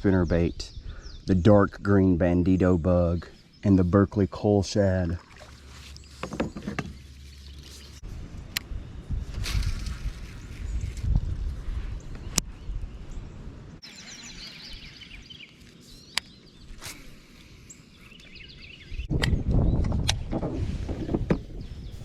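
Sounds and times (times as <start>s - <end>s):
wind rumbling on microphone: 0.0s - 2.2s, 7.7s - 15.4s, 18.3s - 22.0s
small birds chirping: 0.0s - 20.0s, 21.3s - 22.0s.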